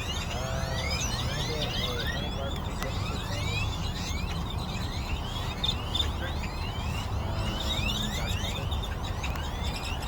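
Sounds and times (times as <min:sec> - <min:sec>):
flock of birds chirping: 0:00.0 - 0:10.0.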